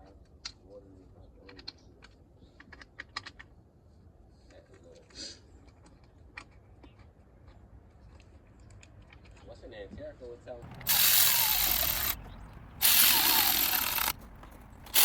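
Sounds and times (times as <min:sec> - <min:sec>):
tools clicking and tapping: 0:10.6 - 0:15.0
short hiss: 0:10.8 - 0:12.2, 0:12.8 - 0:14.2.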